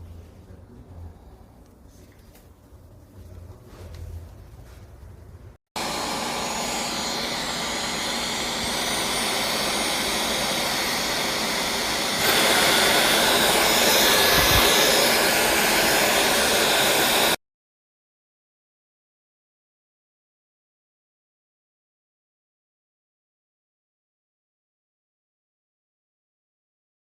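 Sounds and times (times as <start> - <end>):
cordless vacuum cleaner whining: 5.8 - 17.4.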